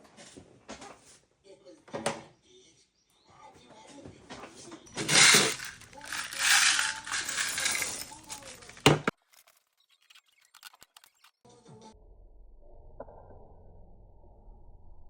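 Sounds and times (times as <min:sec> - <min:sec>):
plastic pieces clattering: 0:05.0 - 0:11.2.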